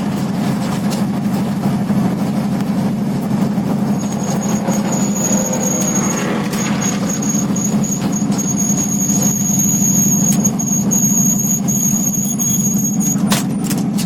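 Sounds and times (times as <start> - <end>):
truck engine running: 0.0 - 14.0
high-pitched whine: 2.6 - 13.6.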